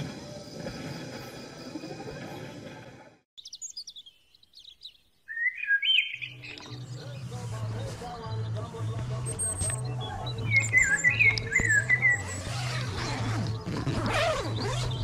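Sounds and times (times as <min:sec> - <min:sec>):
birds chirping: 0:03.4 - 0:15.0.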